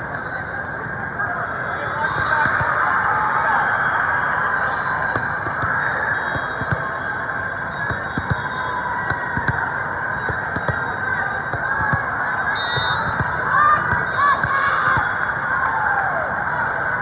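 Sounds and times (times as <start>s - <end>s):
crowd chatter: 0.0s - 17.0s
volleyballs being hit: 2.0s - 3.2s, 4.7s - 16.6s.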